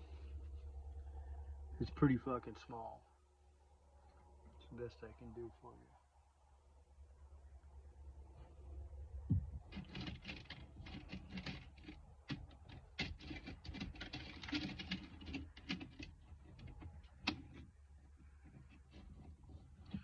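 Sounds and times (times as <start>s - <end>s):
crinkling and clicking handling noise: 9.6s - 20.0s.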